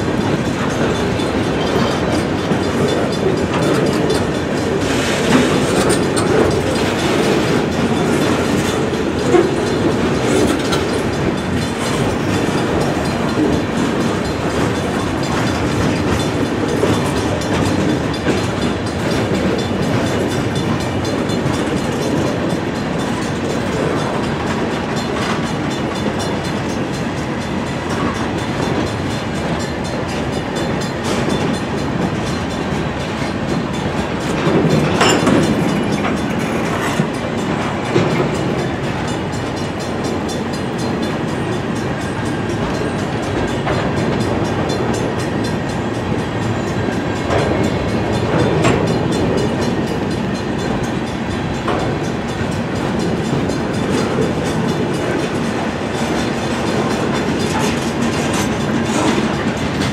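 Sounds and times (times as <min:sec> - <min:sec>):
freight cars rumbling on rails: 0:00.0 - 0:59.9.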